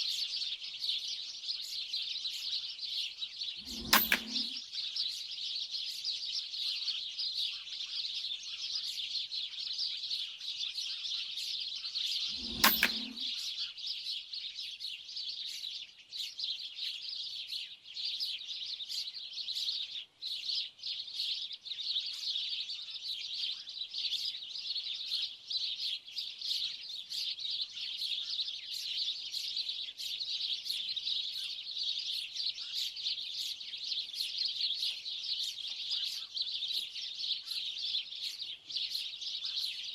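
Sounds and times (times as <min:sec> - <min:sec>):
small birds chirping: 0:13.9 - 0:39.9.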